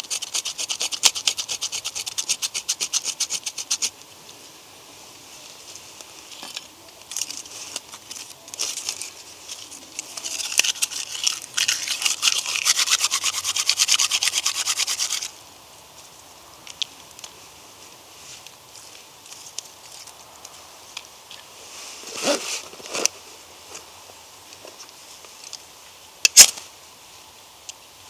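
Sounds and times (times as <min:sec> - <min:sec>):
scraping strokes: 0:00.0 - 0:03.9, 0:07.2 - 0:15.3.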